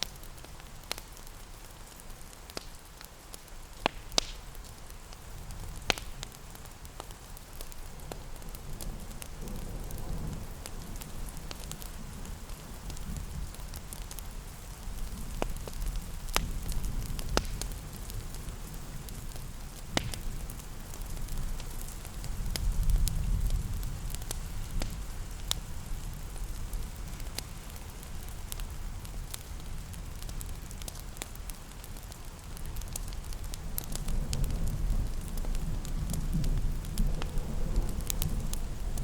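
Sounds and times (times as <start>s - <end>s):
fire popping and snapping: 0.0s - 39.0s
rain pattering: 0.0s - 39.0s
wood fire crackling: 0.0s - 39.0s.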